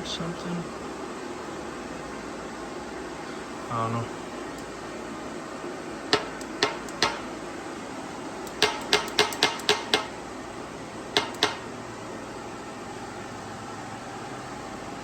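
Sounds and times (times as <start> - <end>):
metal-on-metal taps: 6.1 - 7.3, 8.5 - 10.2, 11.2 - 11.7.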